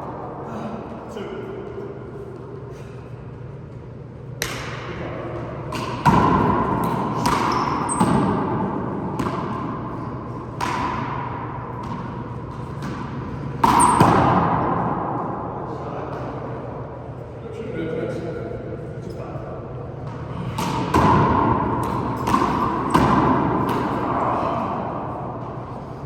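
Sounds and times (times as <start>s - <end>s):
shoe squeaks: 7.4s - 8.3s.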